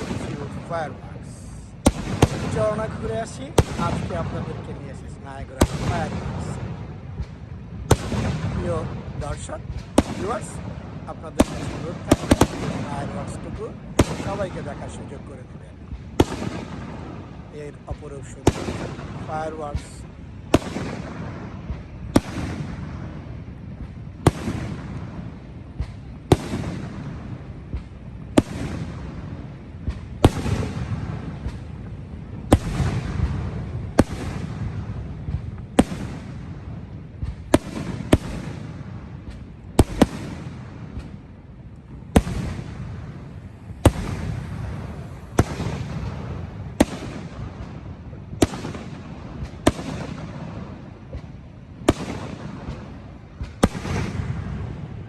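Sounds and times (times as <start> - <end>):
fireworks bangs: 0.0 - 55.0
low rumble: 40.5 - 48.4.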